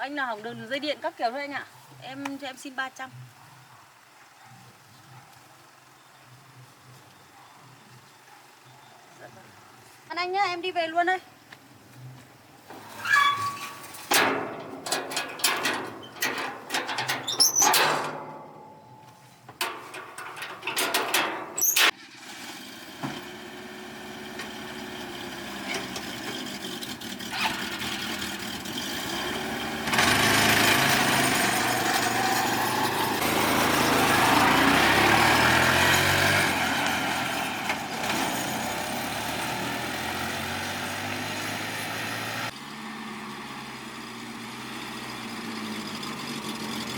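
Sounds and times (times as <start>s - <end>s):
clicks and knocks: 14.0s - 18.7s, 19.5s - 21.9s
vehicle engine running: 23.2s - 46.9s.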